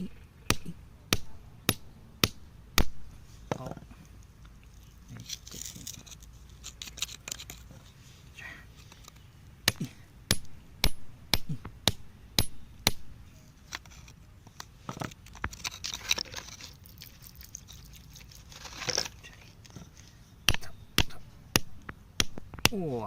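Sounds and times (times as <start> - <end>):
hand tool striking rock: 0.5 - 3.6, 9.6 - 13.1, 20.5 - 23.0
loose rock scraping and crunching: 3.5 - 8.0, 12.8 - 20.6.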